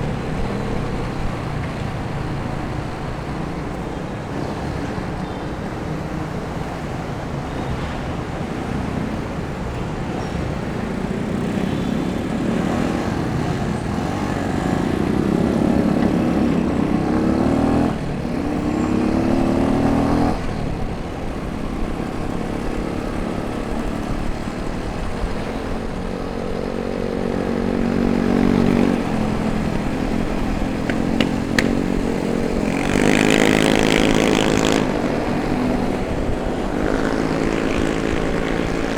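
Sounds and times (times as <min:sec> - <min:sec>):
wind rush on microphone: 0:00.0 - 0:38.9
motorcycle engine accelerating: 0:10.8 - 0:38.9.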